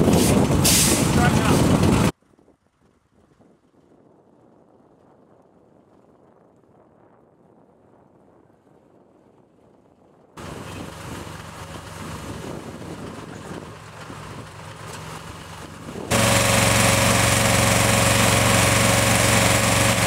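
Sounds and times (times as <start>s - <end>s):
heavy truck engine running: 0.0s - 2.1s, 10.4s - 20.0s.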